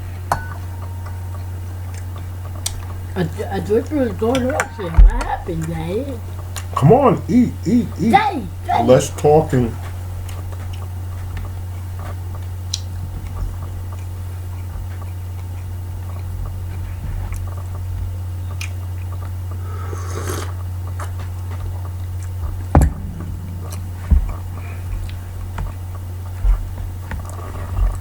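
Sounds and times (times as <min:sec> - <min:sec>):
chewing: 0:09.8 - 0:22.4
low hum: 0:21.9 - 0:26.8
sharp knocks: 0:22.8 - 0:25.8.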